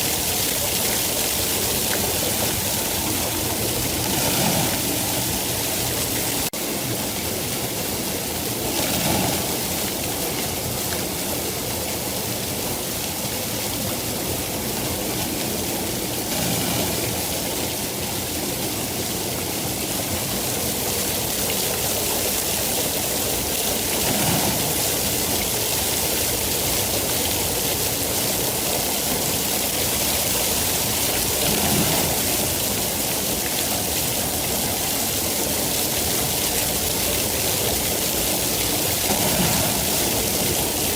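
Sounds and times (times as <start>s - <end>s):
heavy rain hissing: 0.0s - 40.9s.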